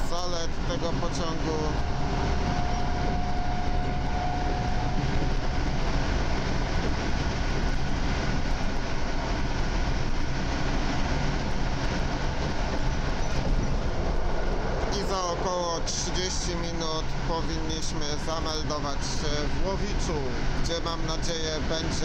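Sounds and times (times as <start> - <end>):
rumble of train wheels: 0.0 - 22.0
high motor whine: 1.2 - 9.2.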